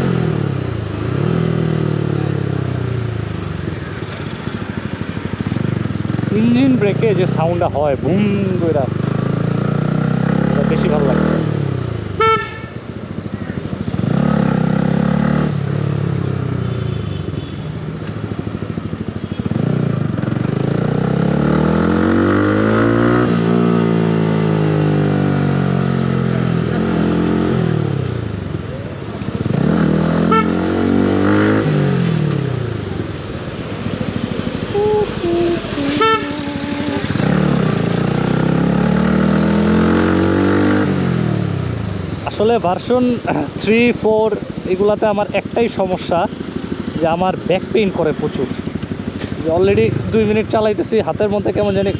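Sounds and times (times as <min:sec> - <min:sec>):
motorcycle engine revving: 0:00.0 - 0:17.4, 0:18.2 - 0:51.9
vehicle horn toots: 0:12.2 - 0:12.8, 0:30.3 - 0:30.7, 0:34.8 - 0:37.2.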